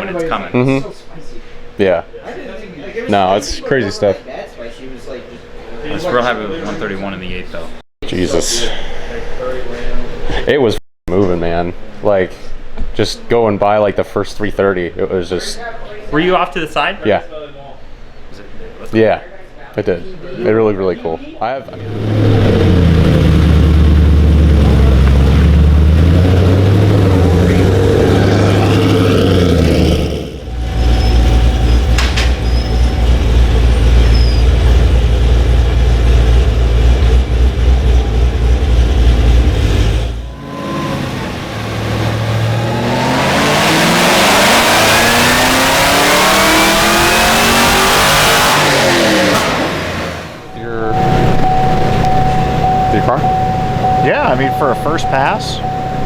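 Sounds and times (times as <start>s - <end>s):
heavy low rumble: 21.7s - 43.5s
drag car engine at steady revs: 21.7s - 50.5s
engine accelerating hard: 21.7s - 56.0s.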